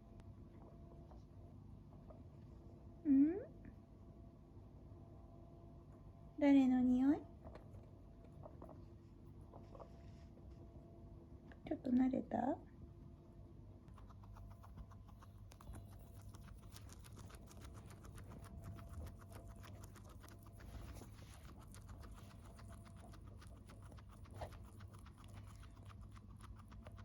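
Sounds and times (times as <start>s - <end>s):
guinea pig chewing: 13.8s - 27.0s.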